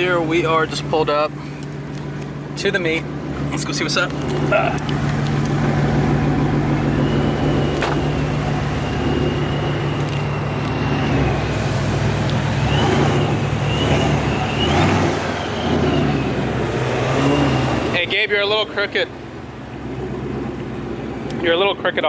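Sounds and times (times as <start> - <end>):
car engine idling: 0.0 - 16.7, 17.7 - 22.0
thin high supercharger whine: 2.6 - 18.9.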